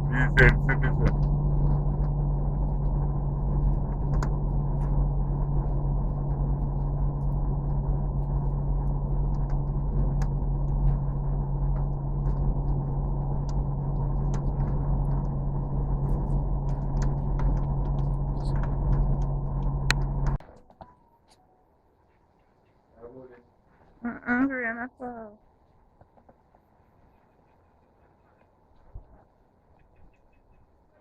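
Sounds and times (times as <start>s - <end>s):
vehicle engine drone: 0.0s - 20.4s.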